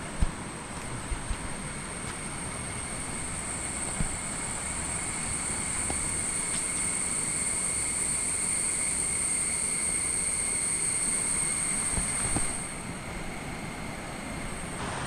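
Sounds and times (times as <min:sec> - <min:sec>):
high-pitched insect drone: 0:01.9 - 0:12.9
low rushing noise: 0:13.3 - 0:15.0.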